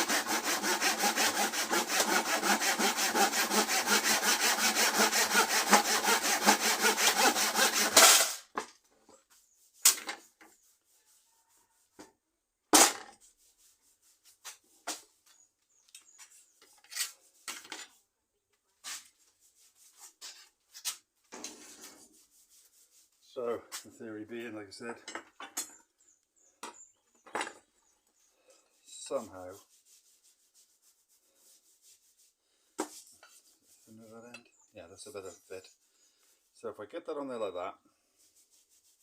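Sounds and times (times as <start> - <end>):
hand saw cutting wood: 0.0 - 8.5
knocks of wood and tools: 32.8 - 33.0.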